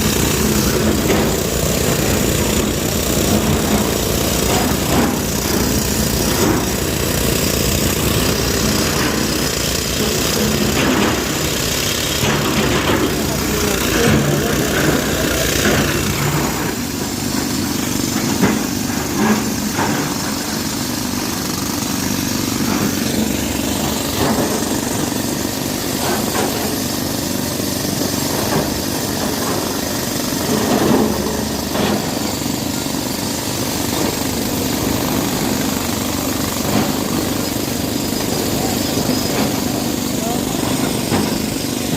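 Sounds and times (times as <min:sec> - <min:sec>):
heavy machinery diesel engine: 0:00.0 - 0:41.9.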